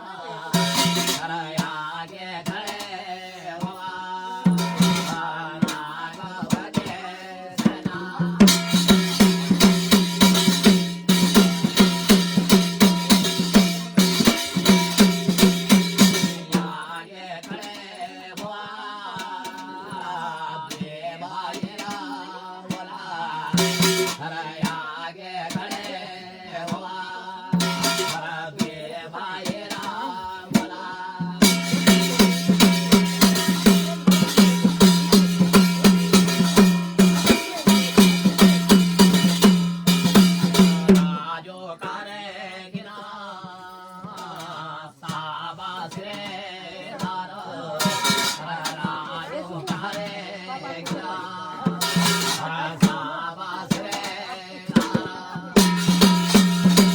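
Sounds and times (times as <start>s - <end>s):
fast repeating drumbeats: 0.5s - 3.9s, 4.5s - 18.6s, 21.5s - 24.8s, 25.5s - 41.4s, 47.8s - 53.1s, 53.7s - 56.9s.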